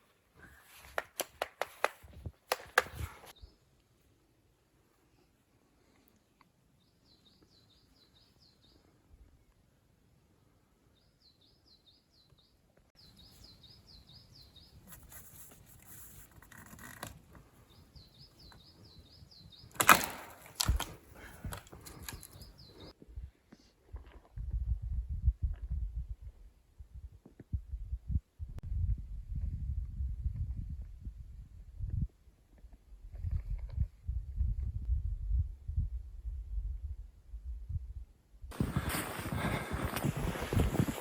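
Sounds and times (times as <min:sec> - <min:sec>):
rustling: 0:38.5 - 0:41.0.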